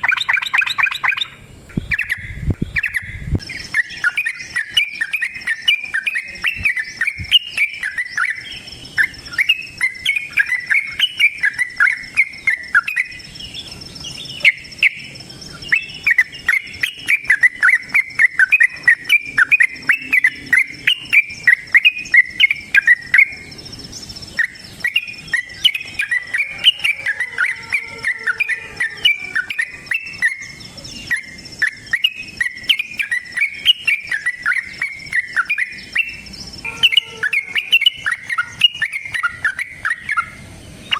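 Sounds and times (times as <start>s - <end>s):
bird chattering song: 0.0s - 40.9s
thin high tone: 14.4s - 40.9s.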